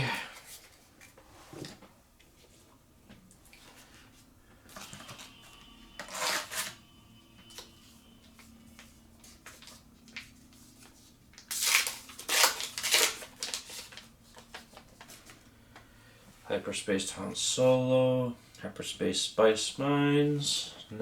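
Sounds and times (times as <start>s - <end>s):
wrapper and cards rustling: 7.5s - 15.4s.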